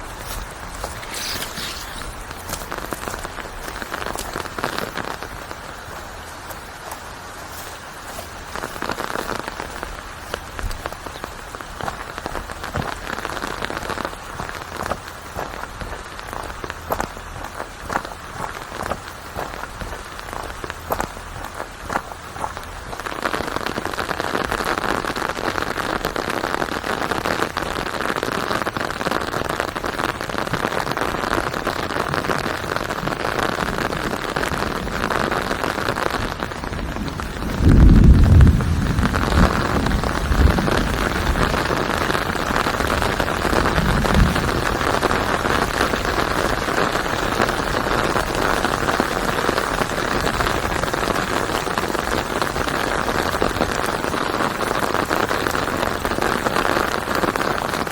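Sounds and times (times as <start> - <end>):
steady rain: 0.0 - 57.9
thunder rumbling: 29.9 - 57.4.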